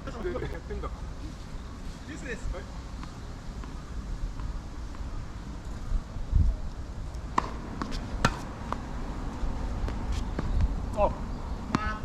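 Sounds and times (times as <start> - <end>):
wind noise on microphone: 3.4 - 7.3, 9.2 - 11.7
tennis ball hitting hard court: 7.3 - 8.9.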